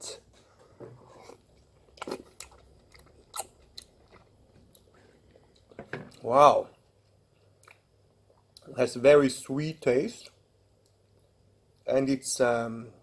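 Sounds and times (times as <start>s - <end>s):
person chewing fruit: 0.6s - 8.7s.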